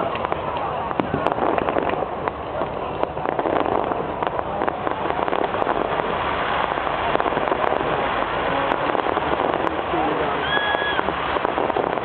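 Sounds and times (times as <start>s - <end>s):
fireworks crackling: 0.0s - 12.0s
steady hiss: 0.1s - 12.0s.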